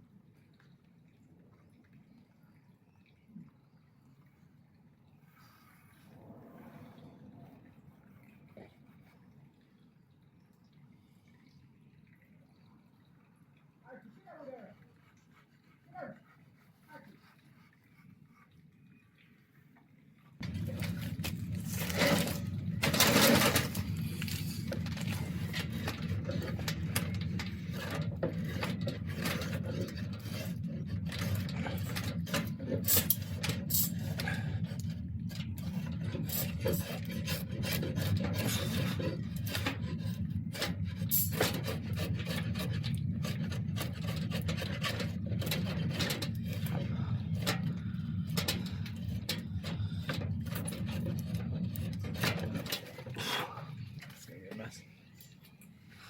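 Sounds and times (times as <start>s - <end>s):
rasp scraping wood: 20.4s - 53.6s.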